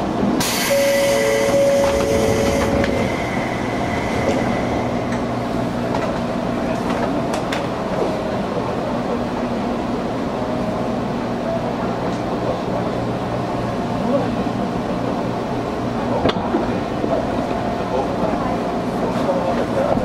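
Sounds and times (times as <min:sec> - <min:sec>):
train running rumble: 0:00.0 - 0:20.0
gangway plates clanking: 0:00.5 - 0:07.8
two-note door chime: 0:00.6 - 0:03.1.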